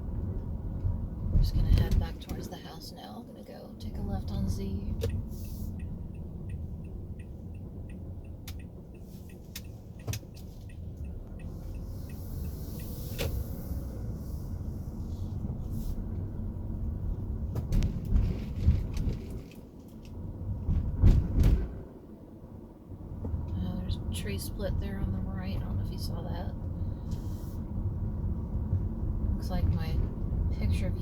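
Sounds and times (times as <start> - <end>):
turn signal ticking: 0.0 - 18.3
car engine and tyre rumble: 0.0 - 31.0
car knocks and bumps: 17.4 - 19.6, 20.6 - 21.9.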